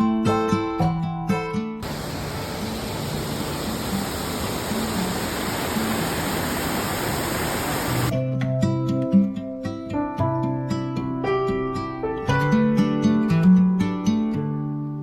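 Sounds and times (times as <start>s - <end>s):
waterfall rushing: 1.8s - 8.1s
acoustic guitar music: 8.0s - 15.0s.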